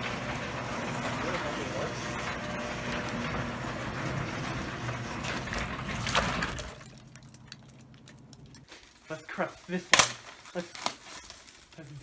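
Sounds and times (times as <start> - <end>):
garage door opener humming: 0.0 - 8.6.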